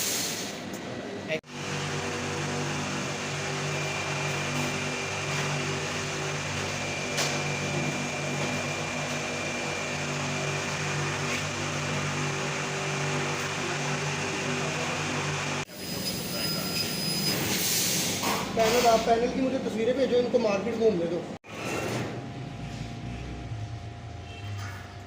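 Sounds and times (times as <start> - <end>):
laser cutting machine hum: 1.4 - 16.1.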